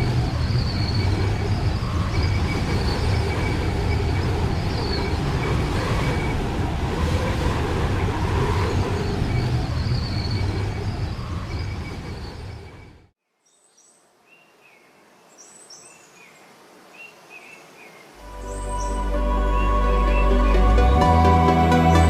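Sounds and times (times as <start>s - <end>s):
faint bird chirps: 8.7s - 20.7s.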